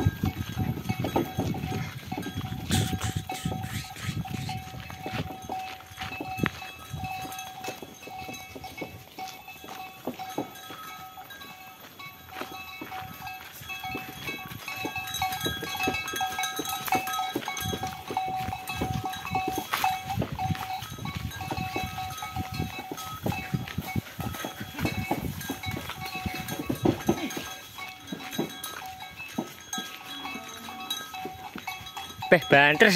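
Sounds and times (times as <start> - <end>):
cart bells clinking and jangling: 0.0 - 32.9
small knocks and clatters: 4.9 - 11.4, 12.4 - 32.1.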